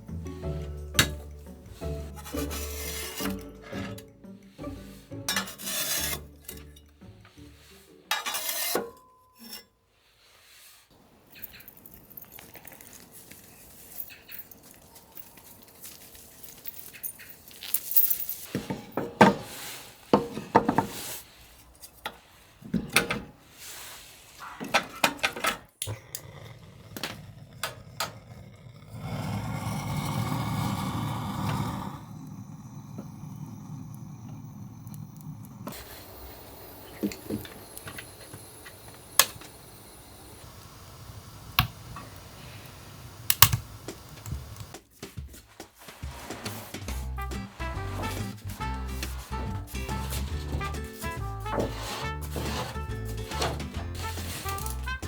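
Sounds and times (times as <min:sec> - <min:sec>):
background music: 0:00.0 - 0:08.4, 0:46.7 - 0:55.0
dishes and cutlery clattering: 0:00.6 - 0:07.5, 0:08.1 - 0:09.7.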